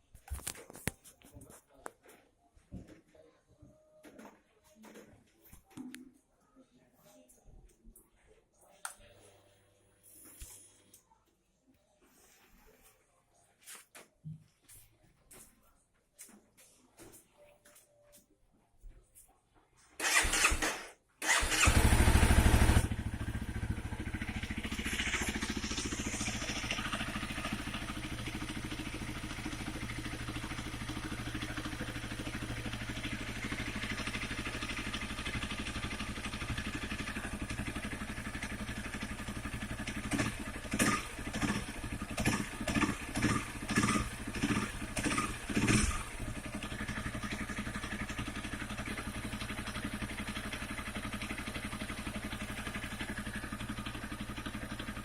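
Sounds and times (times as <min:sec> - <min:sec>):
motorcycle engine starting and idling: 0:20.0 - 0:55.0.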